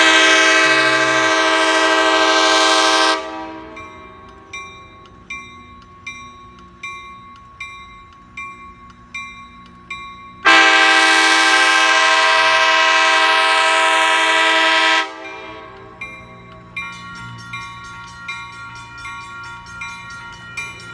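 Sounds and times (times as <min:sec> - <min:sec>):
locomotive horn blast: 0:00.0 - 0:03.9, 0:10.4 - 0:16.0
level-crossing bell dinging: 0:03.6 - 0:10.5, 0:15.2 - 0:20.9.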